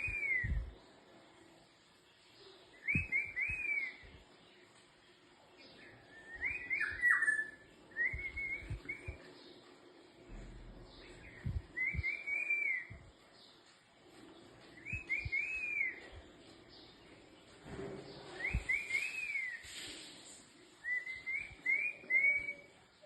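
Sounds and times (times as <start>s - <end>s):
bird singing fluty whistles: 0.0s - 0.7s, 2.8s - 4.1s, 6.1s - 9.3s, 11.2s - 13.1s, 14.8s - 16.1s, 18.3s - 19.7s, 20.8s - 22.7s.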